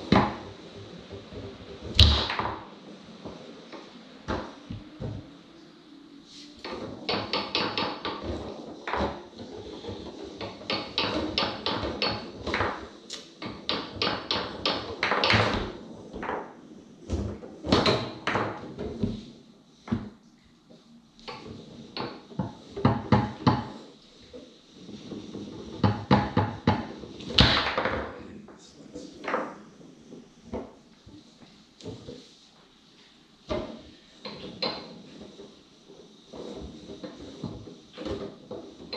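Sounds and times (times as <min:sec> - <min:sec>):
foosball ball clacking: 0:00.0 - 0:05.4, 0:06.6 - 0:20.4, 0:21.2 - 0:28.2, 0:29.2 - 0:30.8, 0:33.4 - 0:38.9
foosball rods knocking and rattling: 0:00.0 - 0:28.3, 0:29.0 - 0:38.9.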